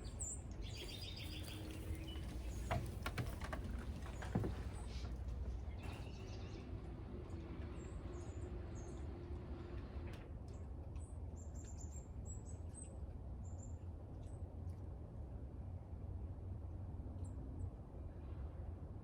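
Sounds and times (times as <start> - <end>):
small birds chirping: 0.0 - 3.2.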